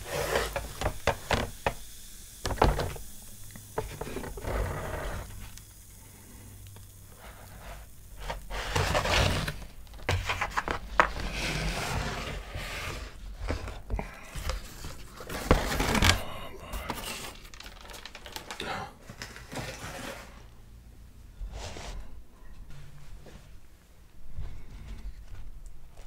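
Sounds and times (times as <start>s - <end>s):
tearing and crinkling: 14.4s - 20.4s.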